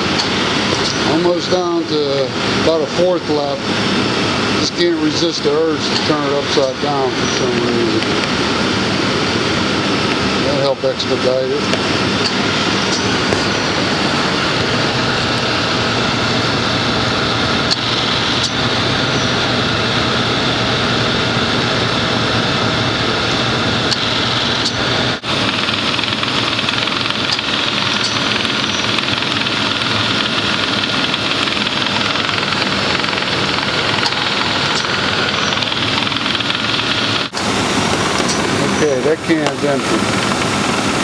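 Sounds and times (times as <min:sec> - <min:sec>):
air conditioning running: 0:00.0 - 0:41.0
car engine idling: 0:00.0 - 0:41.0.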